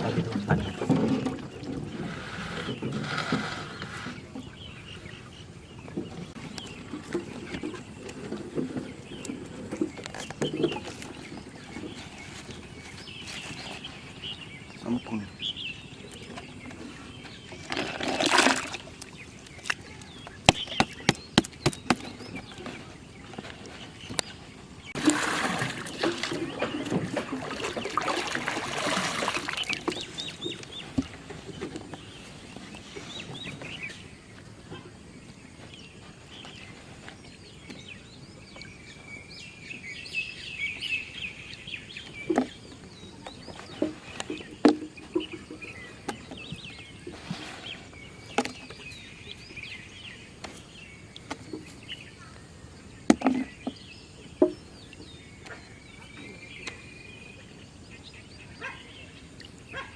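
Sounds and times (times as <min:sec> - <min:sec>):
birds chirping: 0:00.0 - 0:59.9
loud noisy splashing: 0:25.0 - 0:30.0.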